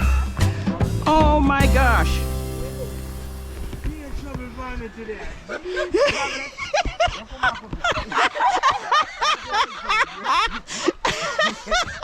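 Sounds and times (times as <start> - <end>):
people squealing and laughing: 4.9 - 12.0.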